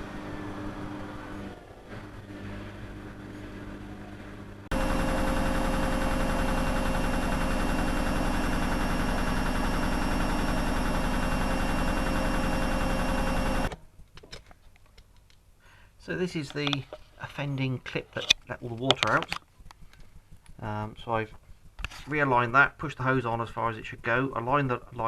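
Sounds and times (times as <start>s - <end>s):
washing machine motor hum: 0.0s - 13.7s.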